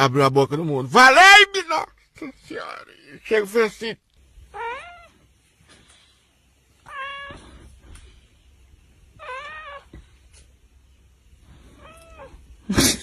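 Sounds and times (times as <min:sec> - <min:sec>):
cat meowing: 0:04.5 - 0:05.2, 0:06.8 - 0:07.6, 0:09.2 - 0:10.0, 0:11.7 - 0:12.4.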